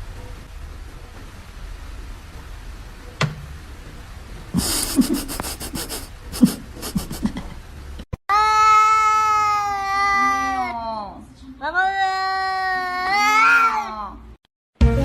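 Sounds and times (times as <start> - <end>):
animal panting: 4.6 - 7.5.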